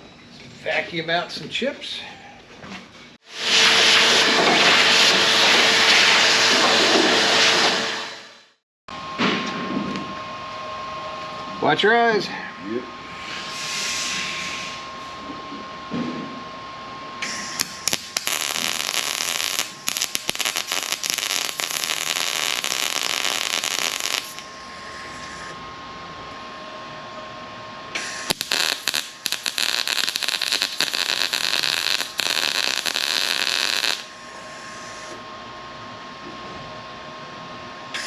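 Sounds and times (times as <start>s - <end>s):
faint steady whine: 16.7s - 35.8s
power tool hissing on metal: 17.2s - 25.5s, 28.0s - 34.1s.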